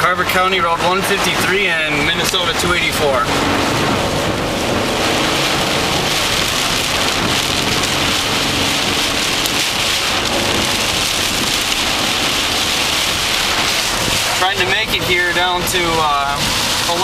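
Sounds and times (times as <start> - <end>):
car engine and road noise: 0.0 - 17.0
heavy rain pelting a car: 0.0 - 17.0.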